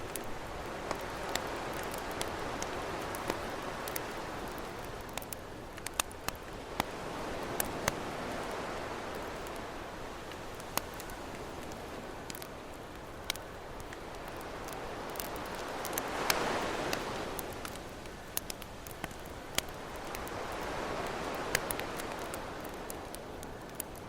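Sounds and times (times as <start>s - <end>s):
campfire crackling: 0.0s - 24.0s
ocean waves: 0.0s - 24.0s.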